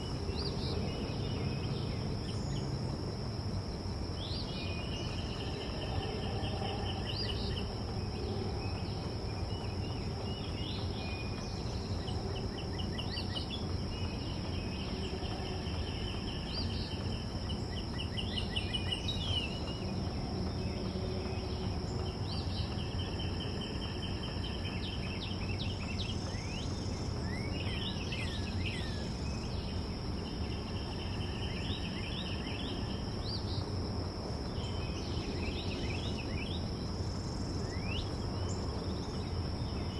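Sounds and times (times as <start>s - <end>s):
high-pitched insect drone: 0.0s - 29.7s
low background rumble: 0.0s - 39.9s
songbirds trilling: 0.0s - 39.9s.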